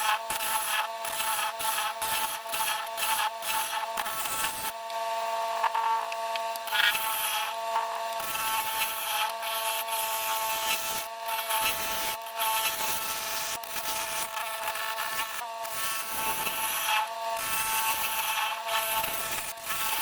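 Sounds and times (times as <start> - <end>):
lathe motor whine: 0.0 - 20.0
turning tool scraping wood: 6.6 - 20.0.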